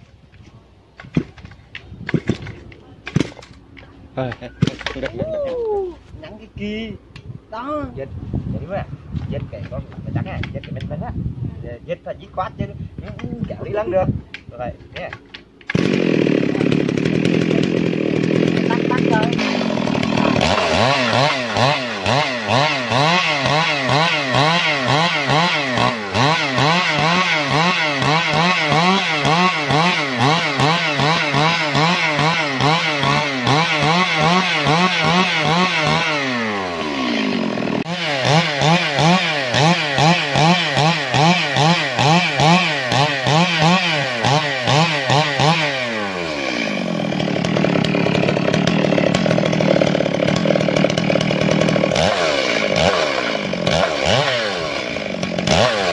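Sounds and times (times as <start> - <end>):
chainsaw running hard: 15.0 - 55.9.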